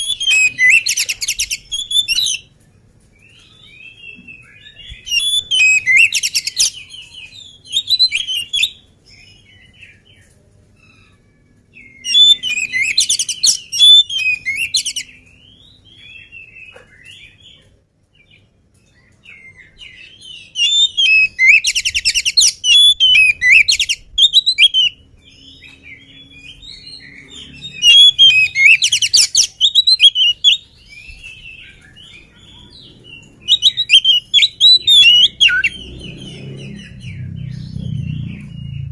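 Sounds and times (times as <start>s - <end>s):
songbird whistling and chattering: 0.0s - 2.5s, 4.0s - 8.8s, 11.8s - 15.2s, 19.6s - 38.9s
soft bird chirps: 3.2s - 38.9s.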